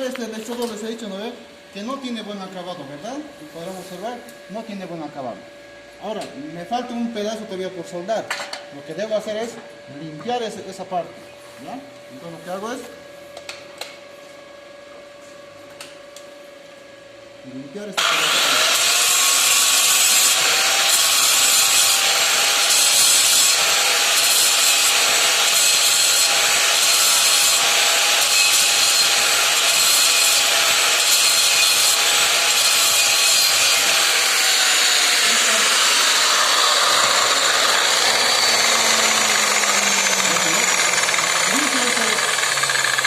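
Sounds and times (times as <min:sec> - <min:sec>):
angle grinder grinding steel: 0:18.0 - 0:43.0.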